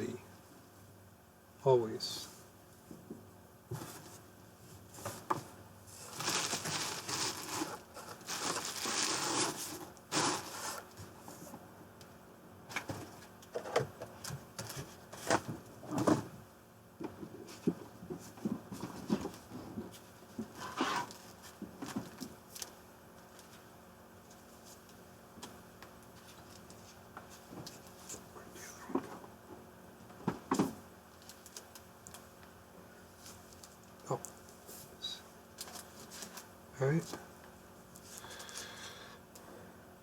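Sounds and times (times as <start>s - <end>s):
packaging rustling and crinkling: 6.0s - 10.8s.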